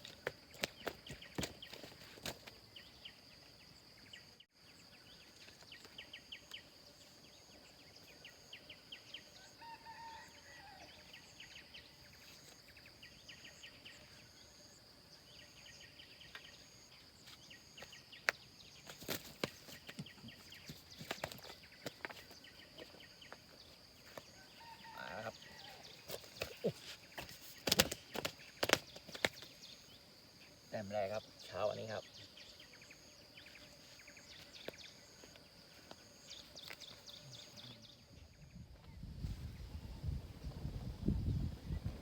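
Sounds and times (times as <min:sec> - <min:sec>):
bird calls: 0:17.3 - 0:30.0.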